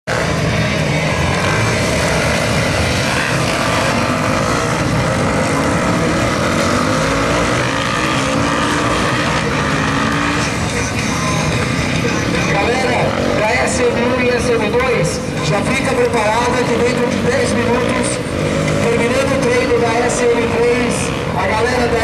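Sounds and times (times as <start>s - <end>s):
motorcycle engines revving: 0.0s - 22.0s.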